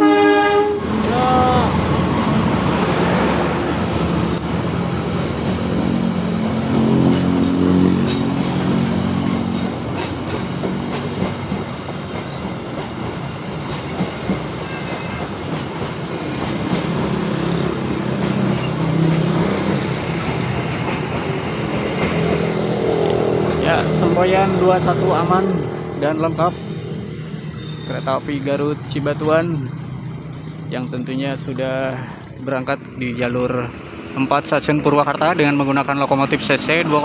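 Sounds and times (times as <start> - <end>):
train coaches rumbling past: 0.0 - 37.0
wheels clacking over rail joints: 2.0 - 25.0.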